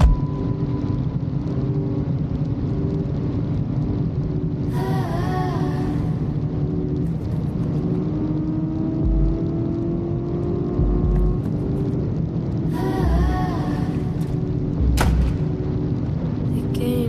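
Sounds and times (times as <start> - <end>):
deep bass music thumping: 0.0 - 0.4, 9.0 - 12.3, 14.5 - 16.0
motorcycle engine running: 8.0 - 11.8.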